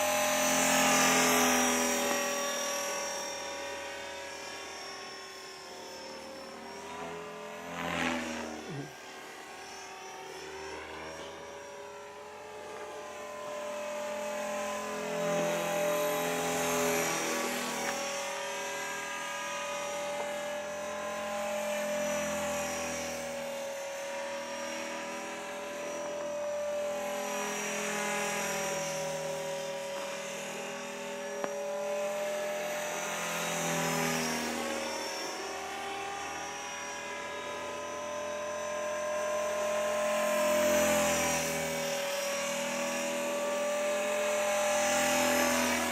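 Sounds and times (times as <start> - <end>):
rc helicopter motor whine: 0.0 - 45.9.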